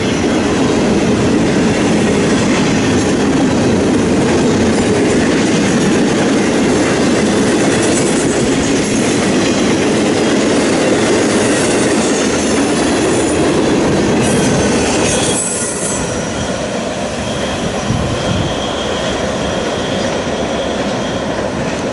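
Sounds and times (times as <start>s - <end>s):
train wheels rumbling on rail: 0.0s - 21.9s
high wheel squeal: 11.4s - 21.9s.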